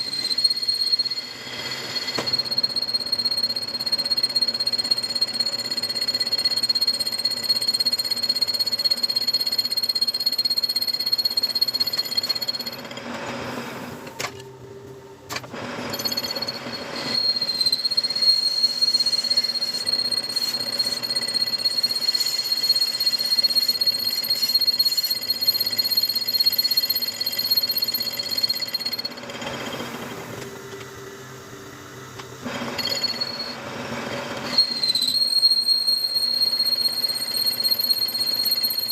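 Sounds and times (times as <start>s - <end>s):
high-pitched machine whine: 0.0s - 38.9s
metal lathe cutting: 15.6s - 30.2s, 32.5s - 38.9s.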